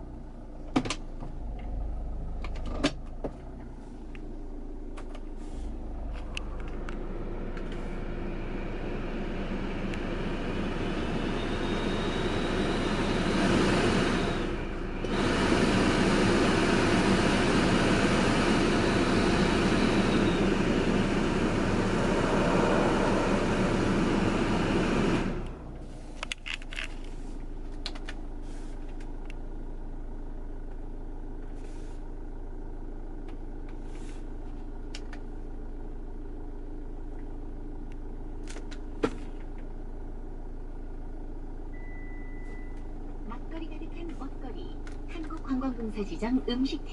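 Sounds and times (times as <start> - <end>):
car noise rushing: 1.3 - 25.8.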